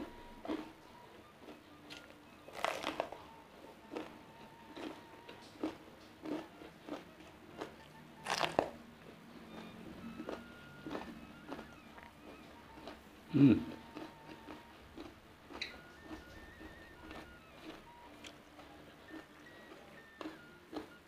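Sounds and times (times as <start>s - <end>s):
crunching bites and chewing: 0.4s - 0.7s, 1.4s - 3.3s, 3.9s - 8.8s, 13.9s - 20.9s.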